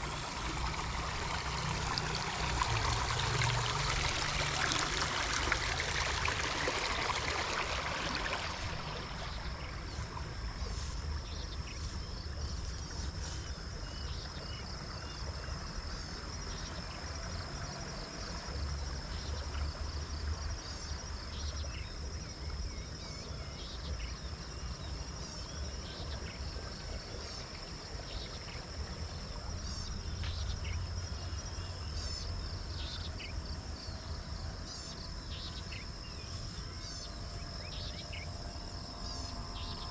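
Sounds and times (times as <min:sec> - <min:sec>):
running water: 0:00.0 - 0:21.3, 0:22.0 - 0:39.9
insects trilling: 0:00.0 - 0:39.9.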